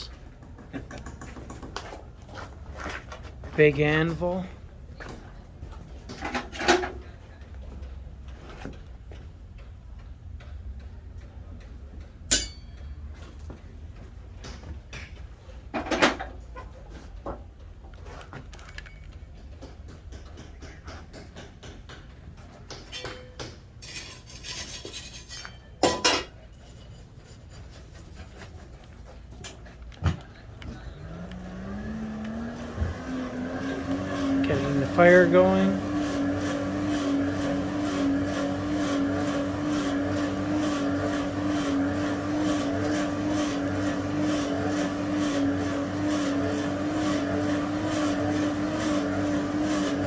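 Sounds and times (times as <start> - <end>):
knocks of metal tools: 12.3 - 12.9, 22.7 - 24.0
sharp metallic clanks: 12.3 - 13.0
forge blower whine: 30.6 - 50.0.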